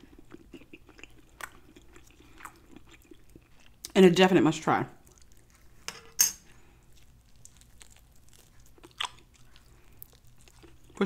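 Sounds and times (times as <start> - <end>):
crisp wet bites and chewing: 0.0 - 3.9, 6.8 - 11.0.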